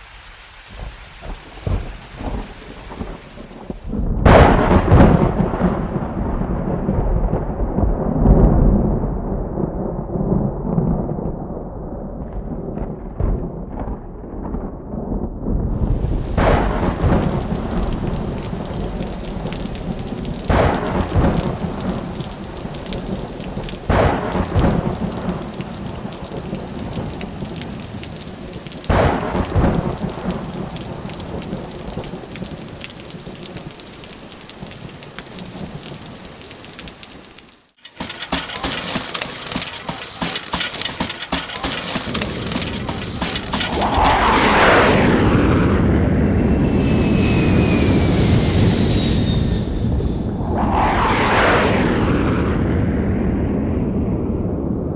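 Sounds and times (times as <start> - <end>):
steady rain: 0.0 - 11.4, 15.7 - 45.7
thunderclaps: 0.0 - 54.9
steady rushing noise: 15.7 - 53.2.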